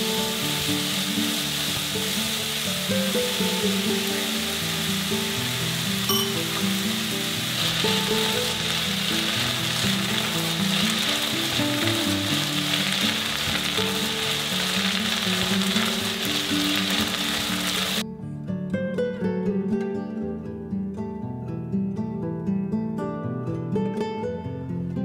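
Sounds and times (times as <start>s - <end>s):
fried rice sizzling in a wok: 0.0s - 18.0s
hiss of sauce poured in wok: 0.0s - 18.0s.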